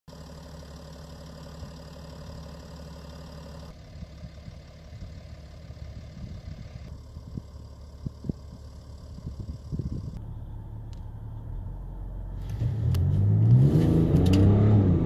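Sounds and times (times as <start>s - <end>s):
diesel engine idling: 0.1s - 12.9s.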